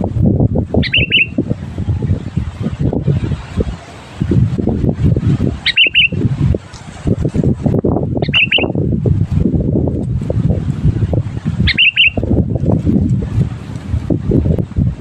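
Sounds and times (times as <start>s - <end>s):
low rumbling noise: 0.0s - 15.0s
bird chirping: 0.8s - 1.4s, 5.6s - 6.2s, 8.2s - 8.8s, 11.6s - 12.2s.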